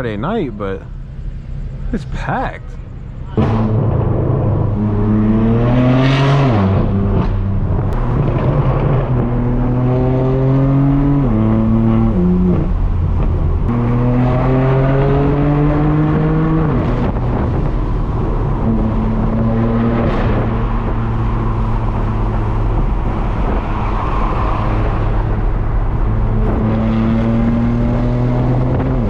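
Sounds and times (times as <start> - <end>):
car exhaust accelerating: 0.9 - 29.0
exhaust cracks: 6.3 - 9.8, 16.0 - 29.0.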